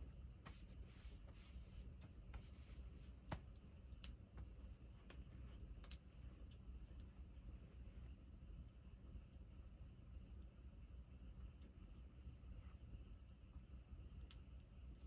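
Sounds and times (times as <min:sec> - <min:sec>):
low steady hum: 0:00.0 - 0:15.0
small clicks and taps: 0:03.3 - 0:06.1, 0:14.2 - 0:14.8.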